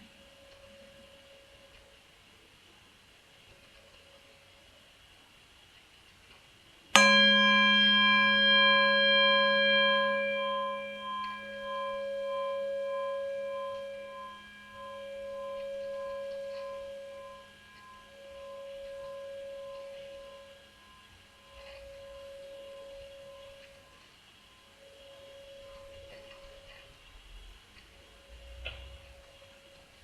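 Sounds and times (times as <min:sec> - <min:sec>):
singing bowl ringing: 0:07.0 - 0:27.0.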